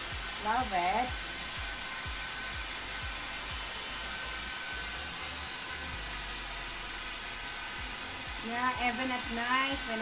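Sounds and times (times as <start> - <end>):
hair dryer running: 0.0 - 10.0.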